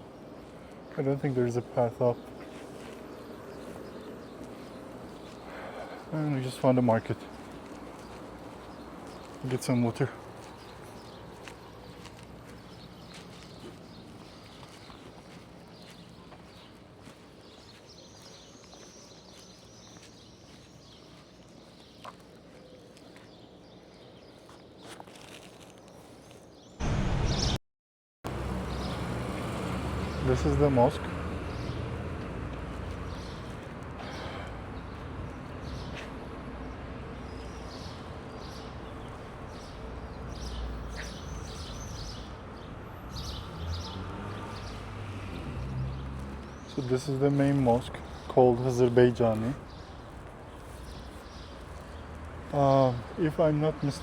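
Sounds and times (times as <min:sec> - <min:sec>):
small birds chirping: 0:00.0 - 0:27.4, 0:28.7 - 0:54.0
faint footsteps: 0:02.2 - 0:06.2, 0:07.1 - 0:26.6, 0:31.6 - 0:36.8, 0:44.4 - 0:53.2.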